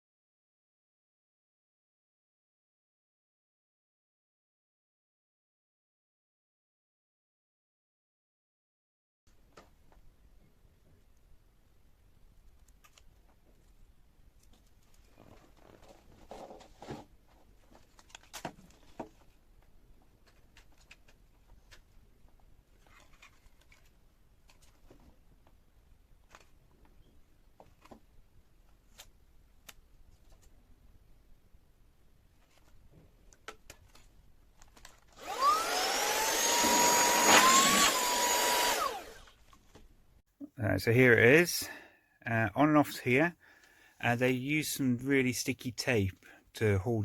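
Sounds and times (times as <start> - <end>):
vacuum motor whine: 35.2 - 39.3.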